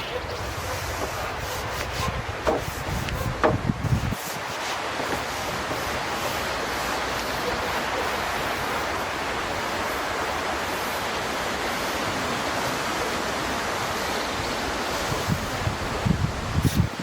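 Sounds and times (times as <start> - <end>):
steady rushing noise: 0.0 - 17.0
low bumps: 0.4 - 4.2.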